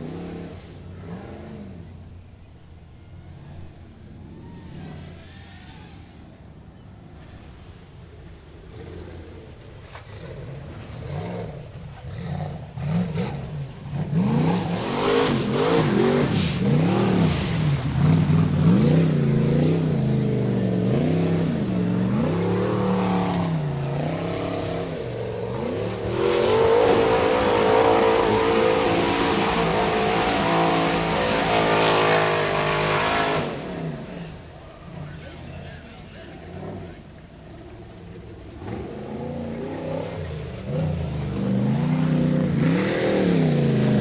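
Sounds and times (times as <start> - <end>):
buggy engine revving hard: 10.1 - 35.1, 38.4 - 44.0.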